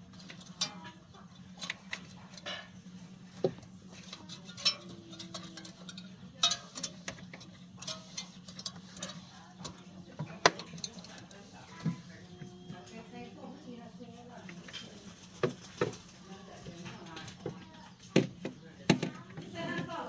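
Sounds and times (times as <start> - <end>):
metal parts clicking and tapping: 0.1 - 1.0, 3.4 - 12.0.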